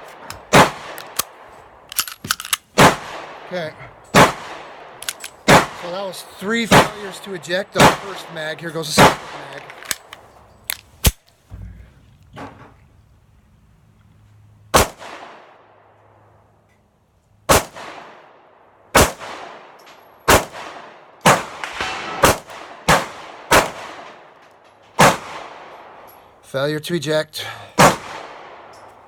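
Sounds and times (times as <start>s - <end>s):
pistol shots with echo: 0.4s - 1.4s, 2.8s - 3.5s, 4.1s - 10.0s, 17.5s - 18.2s, 19.0s - 19.7s, 20.3s - 24.3s, 25.0s - 26.0s, 27.8s - 28.7s.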